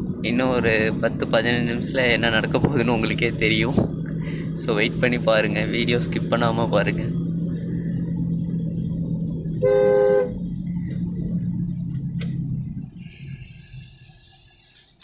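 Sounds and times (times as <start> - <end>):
car engine humming: 0.0 - 15.0
car horn honk: 9.6 - 10.5.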